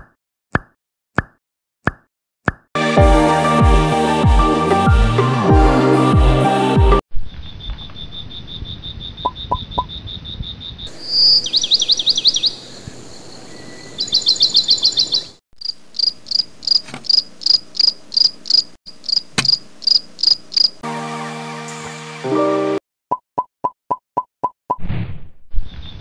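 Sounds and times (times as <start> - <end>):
crickets chirping: 7.4 - 14.7, 15.6 - 20.8.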